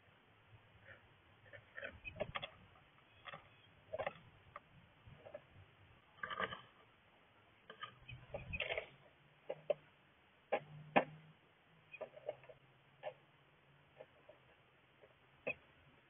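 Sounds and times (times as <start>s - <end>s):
bird scraping inside a nestbox: 6.2s - 6.8s.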